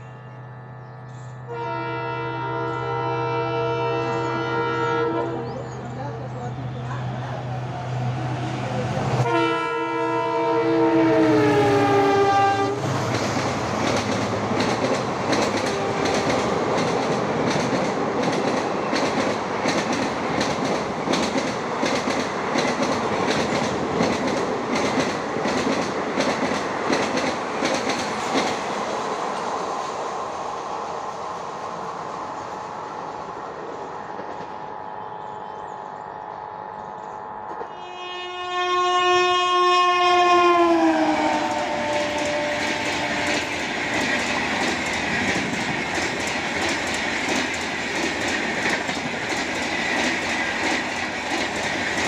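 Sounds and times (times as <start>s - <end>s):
train coaches rattling past: 0.0s - 52.0s
train horn: 1.4s - 5.6s, 9.2s - 12.9s, 15.6s - 16.6s, 37.6s - 44.0s
wheels clicking over rail joints: 13.1s - 28.6s, 41.9s - 52.0s.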